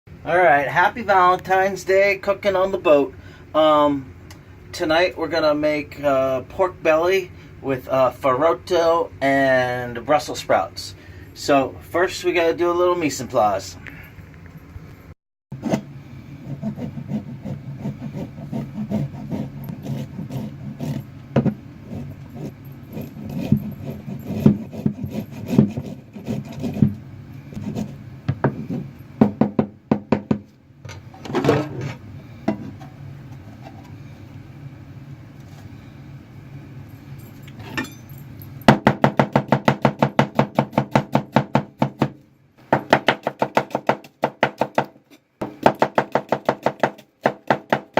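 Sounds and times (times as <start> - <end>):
steady low hum: 0.1 - 47.9
rapid knife chopping: 16.5 - 27.0, 38.7 - 47.9.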